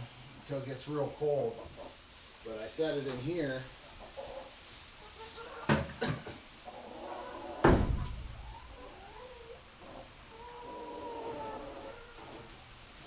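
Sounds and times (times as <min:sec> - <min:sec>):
chickens calling: 0:01.0 - 0:13.0
sharp knocks: 0:07.6 - 0:08.5
heavy metal thud: 0:07.6 - 0:08.8.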